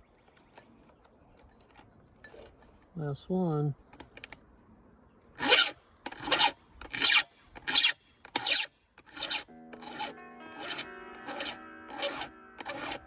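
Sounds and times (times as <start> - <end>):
hand file rasping on chain: 5.4 - 13.0.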